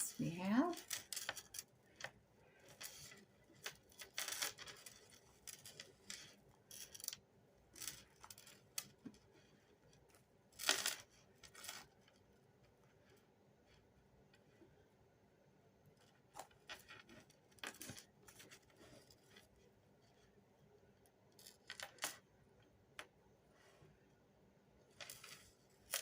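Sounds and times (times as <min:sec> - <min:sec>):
beads clicking and clinking: 0:00.0 - 0:09.2.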